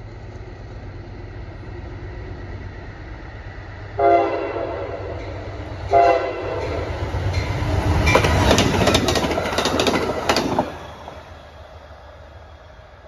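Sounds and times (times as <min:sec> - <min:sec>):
train wheels rushing on rail: 0:00.0 - 0:13.0
wheels clicking over rail joints: 0:06.6 - 0:11.2.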